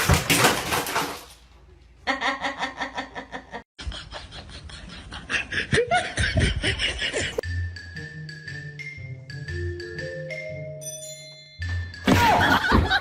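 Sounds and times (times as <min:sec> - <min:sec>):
people laughing: 0:02.1 - 0:07.4, 0:12.2 - 0:13.0.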